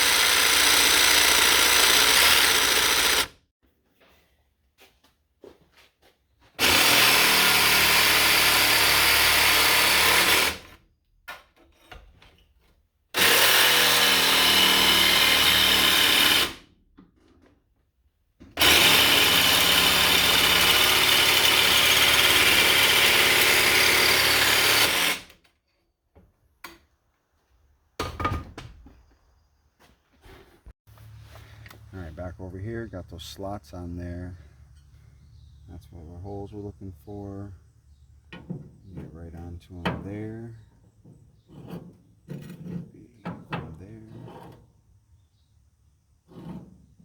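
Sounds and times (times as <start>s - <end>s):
power tool cutting: 0.0s - 3.4s, 6.6s - 10.8s, 13.2s - 16.6s, 18.6s - 25.4s.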